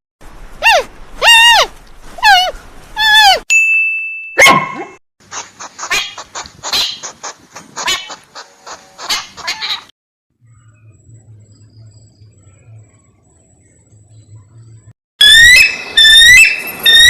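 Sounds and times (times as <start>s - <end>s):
loud pitched animal call: 15.2s - 17.0s.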